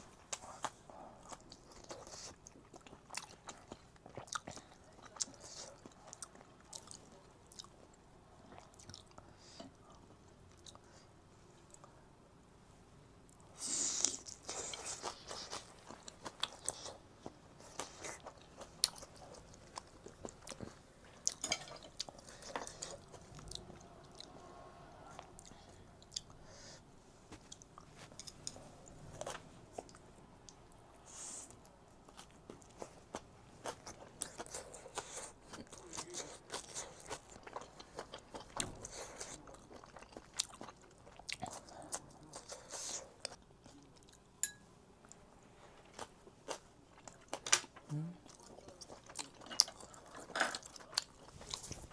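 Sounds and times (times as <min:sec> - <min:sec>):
person chewing crunchy food: 0:00.3 - 0:07.8, 0:13.6 - 0:24.4, 0:32.1 - 0:44.2, 0:48.3 - 0:51.9.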